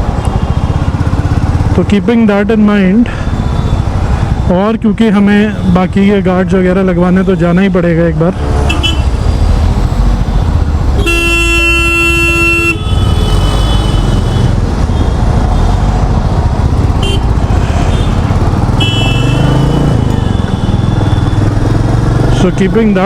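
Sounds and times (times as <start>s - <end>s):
motorcycle engine running: 0.0s - 2.4s, 8.6s - 23.0s
distant traffic horns: 8.6s - 9.2s, 10.2s - 15.9s, 16.7s - 23.0s
vehicle horn honking: 8.7s - 9.1s, 11.0s - 15.1s, 17.0s - 21.4s.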